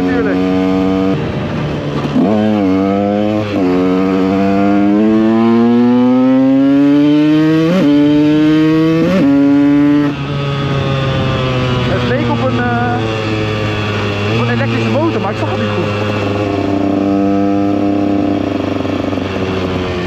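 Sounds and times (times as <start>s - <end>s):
two-stroke motorcycle engine: 0.0s - 20.0s.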